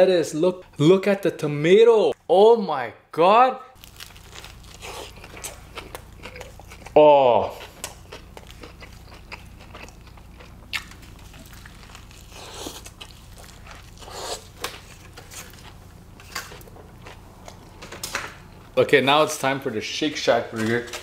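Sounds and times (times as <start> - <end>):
soft wet chewing: 4.3 - 15.8.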